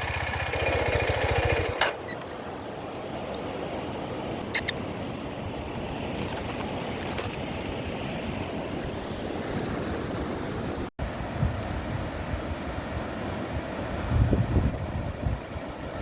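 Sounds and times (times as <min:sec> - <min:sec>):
surf washing on a beach: 0:02.4 - 0:16.0
wind buffeting the microphone: 0:04.9 - 0:16.0.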